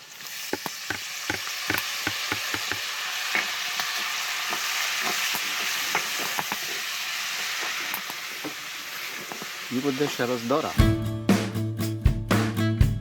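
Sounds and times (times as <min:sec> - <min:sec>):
meat sizzling in a pan: 0:00.0 - 0:10.8
utensil knocking against pan: 0:00.9 - 0:02.9.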